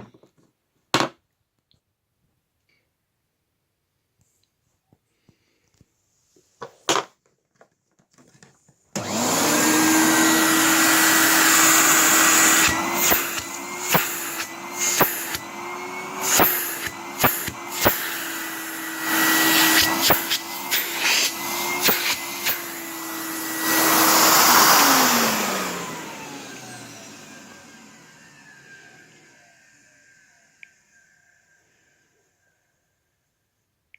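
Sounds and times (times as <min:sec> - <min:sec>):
vacuum cleaner motor whining: 0:08.9 - 0:32.7.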